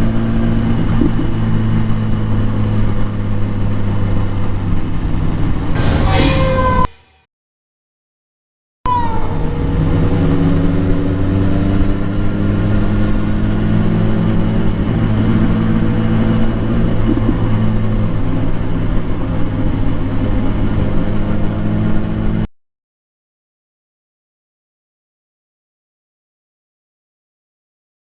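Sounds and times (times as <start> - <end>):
vehicle engine running: 0.0 - 6.6, 8.9 - 22.5.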